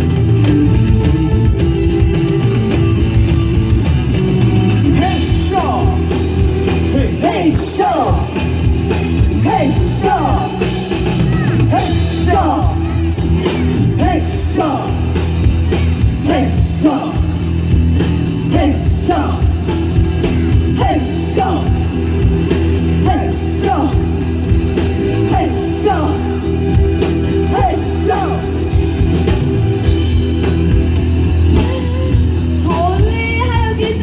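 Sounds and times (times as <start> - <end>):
live band playing: 0.0 - 34.0.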